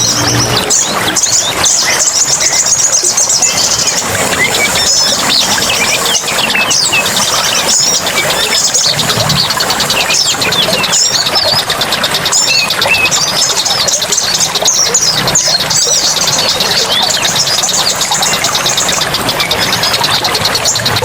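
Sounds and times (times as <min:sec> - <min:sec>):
birds chirping and whistling: 0:00.0 - 0:21.0
fast pulsing trill: 0:00.0 - 0:21.0
steady hiss: 0:03.9 - 0:10.1.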